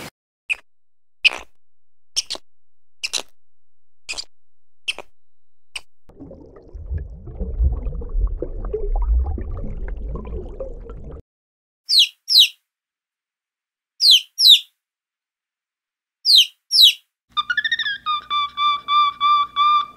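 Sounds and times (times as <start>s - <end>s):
low underwater rumble: 0.7s - 11.2s.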